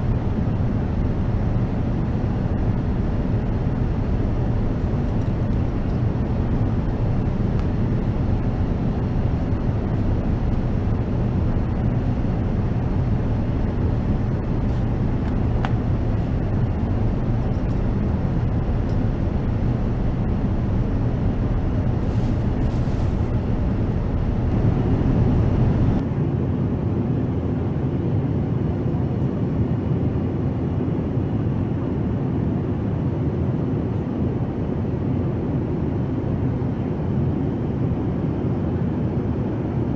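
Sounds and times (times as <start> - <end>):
airliner cabin noise: 24.5 - 39.9.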